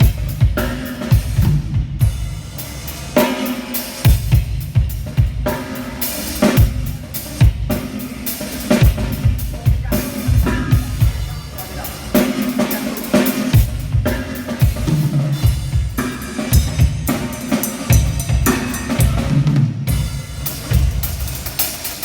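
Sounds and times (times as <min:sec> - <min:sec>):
drum kit beat with cymbals: 0:00.0 - 0:22.0
low bass line: 0:10.3 - 0:11.3.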